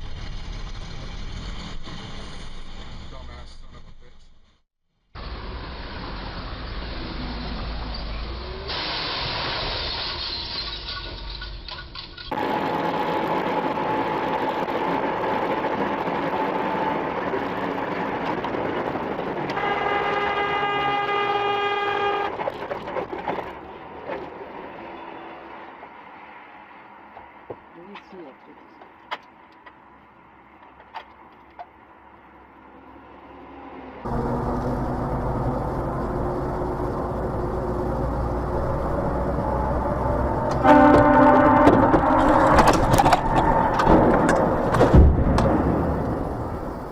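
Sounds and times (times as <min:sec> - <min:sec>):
rushing vehicle noise: 0:00.0 - 0:46.9
loud vehicle horn: 0:19.5 - 0:22.6, 0:40.5 - 0:42.8.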